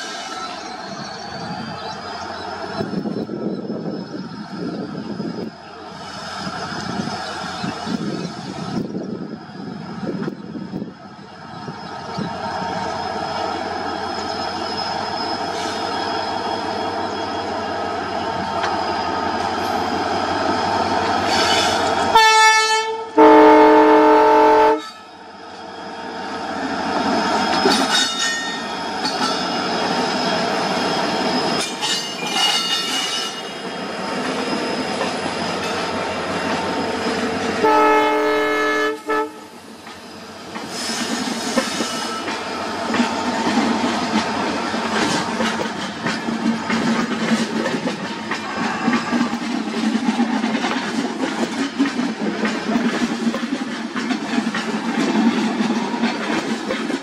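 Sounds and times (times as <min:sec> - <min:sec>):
train wheels clickety-clack: 0:01.8 - 0:11.0, 0:11.6 - 0:22.8, 0:26.4 - 0:39.2, 0:39.8 - 0:57.0
high-pitched wheel squeal: 0:11.5 - 0:19.8, 0:21.1 - 0:22.0, 0:25.8 - 0:38.8
locomotive horn blasts: 0:22.1 - 0:25.0, 0:37.6 - 0:39.6.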